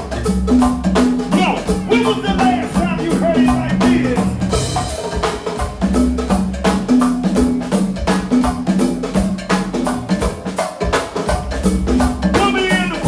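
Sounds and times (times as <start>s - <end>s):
bass line: 0.0s - 10.3s, 11.4s - 13.0s
drum kit hits: 0.0s - 13.0s
live band music: 0.0s - 13.0s
vocal call-outs: 1.2s - 4.9s, 12.3s - 13.0s.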